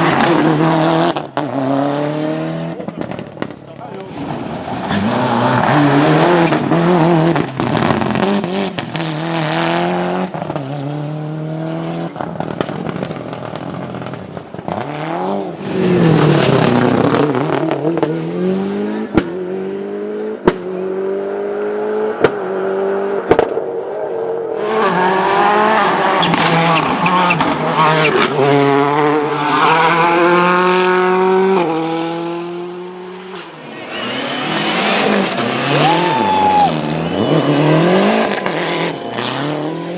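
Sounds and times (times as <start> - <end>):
exhaust bangs: 0.0 - 10.7, 33.2 - 39.9
rally car engines revving: 0.0 - 39.9
tyre squeal: 26.1 - 30.3, 33.6 - 39.9.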